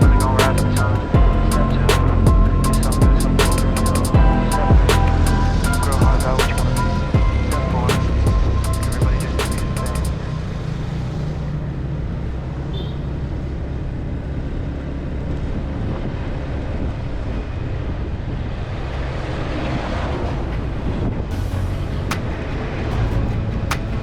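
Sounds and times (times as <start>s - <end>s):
road noise: 0.0s - 24.0s
rushing wind: 0.0s - 24.0s.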